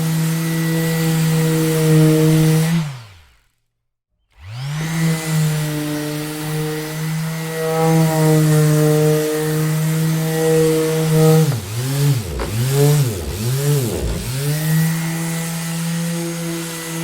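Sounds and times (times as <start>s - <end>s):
orbital sander spinning: 4.3s - 17.0s.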